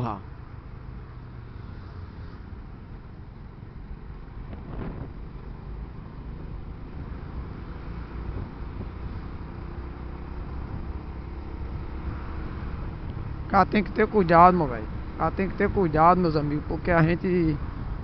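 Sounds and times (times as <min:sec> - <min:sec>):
car engine and tyres rumbling: 0:00.0 - 0:18.0
wind noise: 0:04.3 - 0:05.4, 0:07.9 - 0:09.4, 0:10.4 - 0:13.6.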